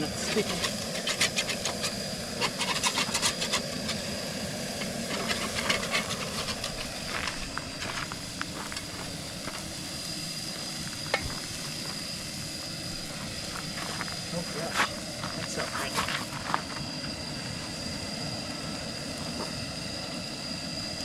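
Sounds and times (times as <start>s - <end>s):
clicks and scrapes: 0.3s - 4.1s, 4.8s - 7.0s.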